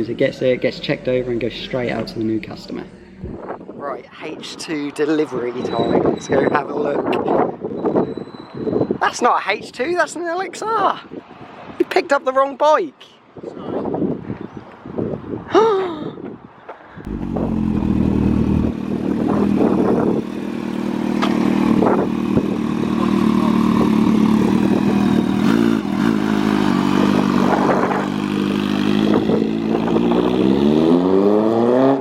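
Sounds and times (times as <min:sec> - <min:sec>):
engine idling and revving: 0:17.1 - 0:32.0.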